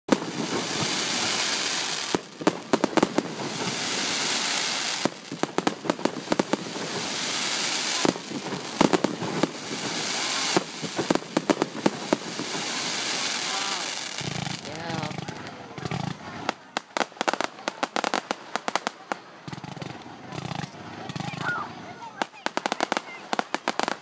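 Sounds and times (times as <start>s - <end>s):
fireworks bangs: 0.1s - 24.0s
fireworks crackling hiss: 0.1s - 24.0s.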